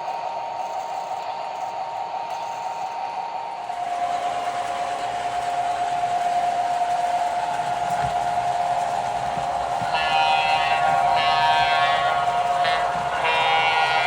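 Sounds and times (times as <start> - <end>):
model train whirring: 0.0 - 14.0.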